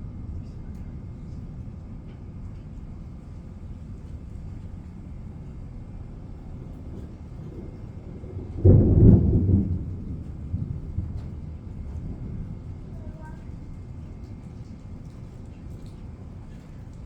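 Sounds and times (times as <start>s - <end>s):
low background rumble: 0.0s - 17.0s
thunder clap: 6.8s - 13.0s.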